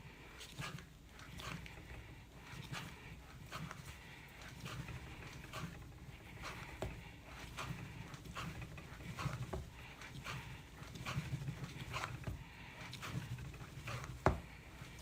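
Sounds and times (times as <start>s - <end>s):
clay thumping on board: 6.4s - 15.0s.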